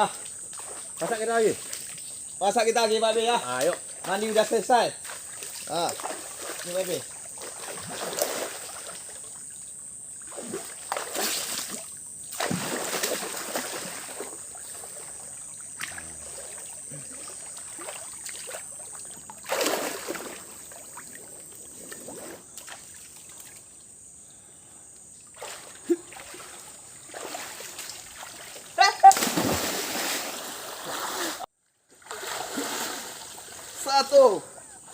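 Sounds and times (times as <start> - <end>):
splashing while wading: 3.6 - 9.3, 10.2 - 23.6, 25.3 - 31.4, 32.0 - 33.8
running water: 10.3 - 23.8, 25.2 - 31.5.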